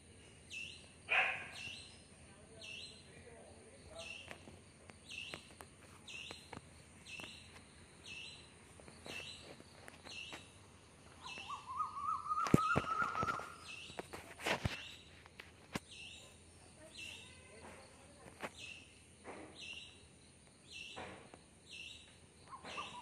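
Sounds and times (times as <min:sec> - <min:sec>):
wavering rising bird call: 0:11.2 - 0:13.8.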